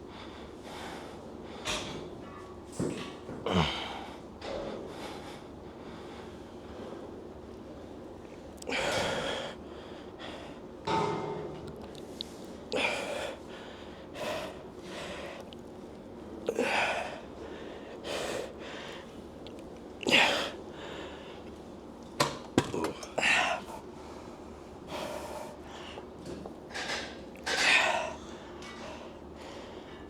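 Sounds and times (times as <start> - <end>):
man breathing hard: 8.6 - 10.7, 12.7 - 15.5, 16.5 - 19.2, 23.2 - 26.2.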